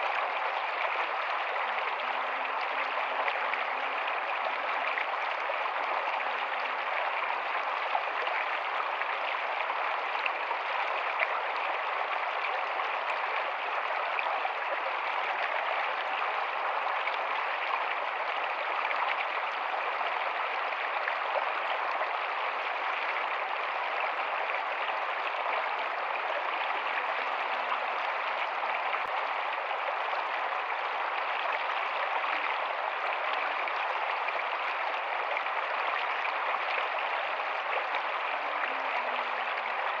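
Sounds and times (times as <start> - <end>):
stream running over stones: 0.0 - 40.0.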